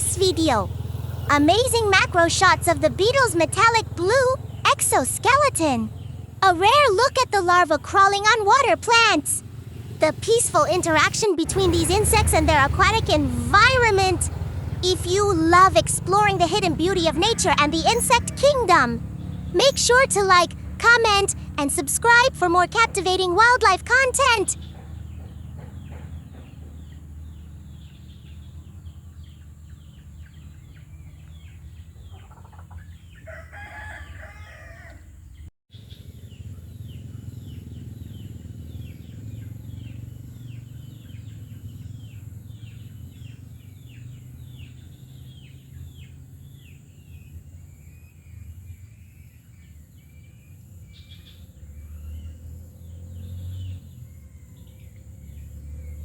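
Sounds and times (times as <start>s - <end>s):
bird chirps: 0.0s - 33.4s, 35.3s - 56.0s
bird crowing call: 32.0s - 35.2s.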